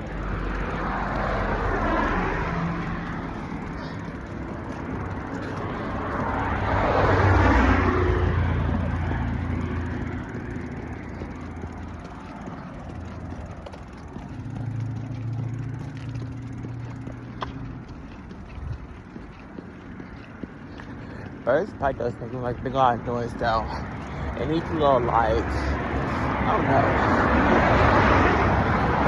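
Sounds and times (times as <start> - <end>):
motorbike engine revving: 0.0 - 19.1.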